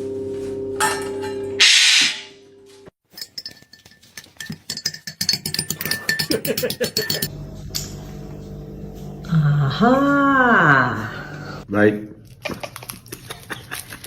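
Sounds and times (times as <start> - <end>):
light clinks and taps: 3.1 - 7.3.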